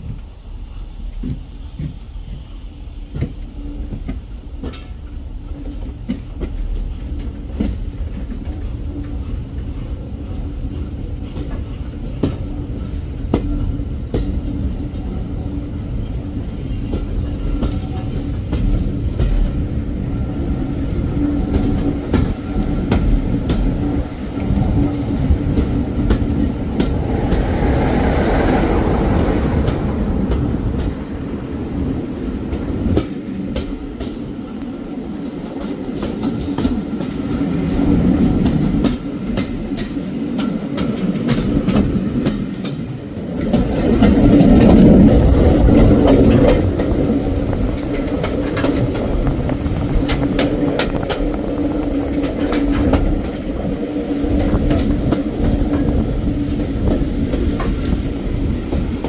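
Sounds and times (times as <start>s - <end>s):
train rumbling: 0.0s - 59.0s
wheels clicking over rail joints: 0.0s - 59.0s
rush of noise: 22.6s - 34.7s.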